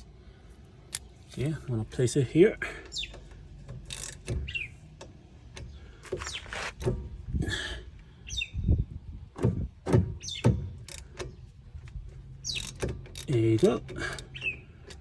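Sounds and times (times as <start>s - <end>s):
ratchet clicking: 3.1s - 5.8s, 10.8s - 15.0s.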